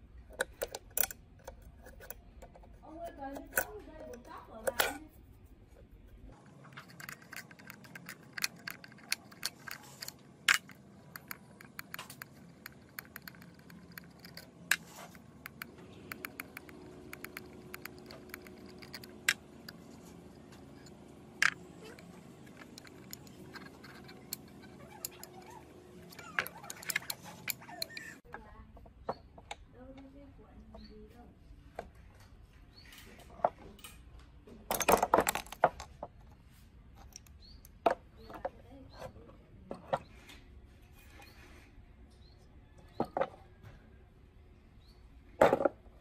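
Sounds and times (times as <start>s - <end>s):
metal parts clinking and scraping: 0.3s - 5.3s, 6.4s - 28.3s, 34.7s - 36.0s.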